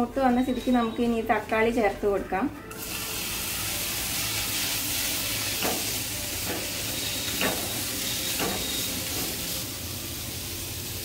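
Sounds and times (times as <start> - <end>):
food sizzling in a pan: 2.7 - 11.0.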